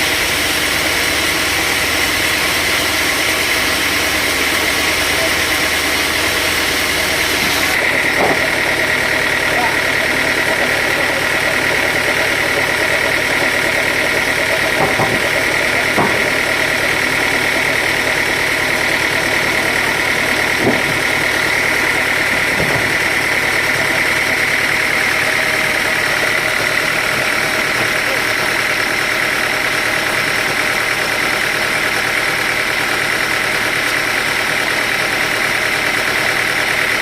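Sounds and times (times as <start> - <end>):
sawmill machinery droning: 0.0 - 37.0
short knocks: 7.4 - 24.4.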